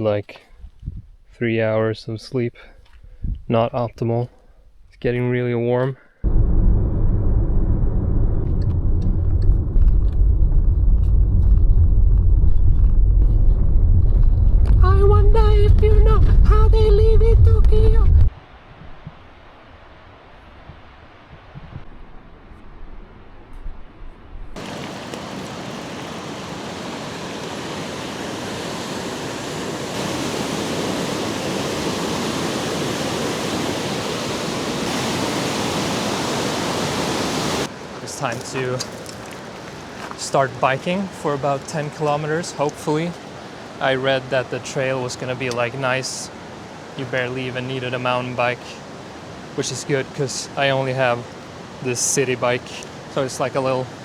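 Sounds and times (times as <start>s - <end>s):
steady rushing noise: 6.2s - 22.0s, 24.6s - 37.7s
car road and engine rumble: 6.3s - 18.2s.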